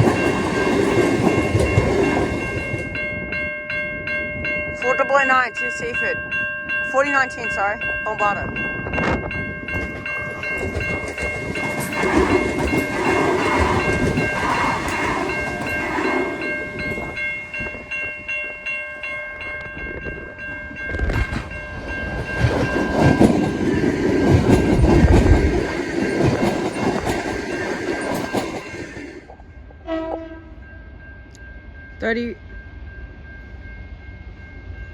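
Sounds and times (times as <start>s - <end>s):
wheels clattering over rail joints: 0.0s - 3.0s, 9.6s - 17.2s, 20.9s - 29.4s
train high whine: 0.0s - 34.9s.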